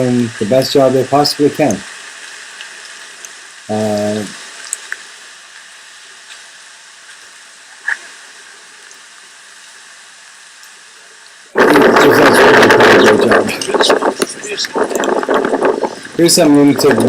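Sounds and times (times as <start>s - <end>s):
heavy rain hissing: 0.0s - 17.0s
small ticks: 1.6s - 8.1s, 8.8s - 9.1s.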